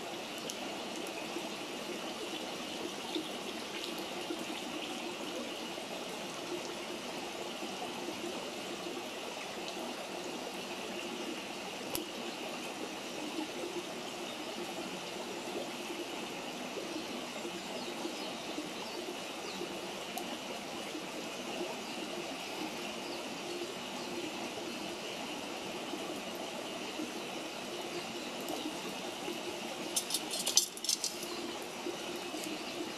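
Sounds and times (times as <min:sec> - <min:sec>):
campfire burning: 0:29.7 - 0:32.9
wood popping: 0:29.9 - 0:31.4.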